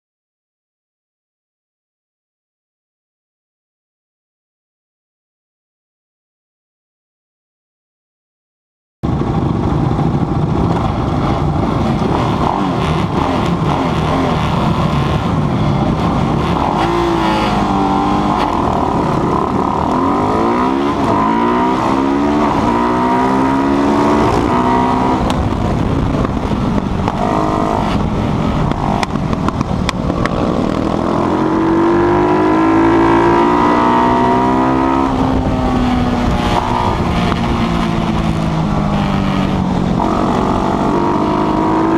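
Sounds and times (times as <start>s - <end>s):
motorcycle engine revving: 9.1s - 41.9s.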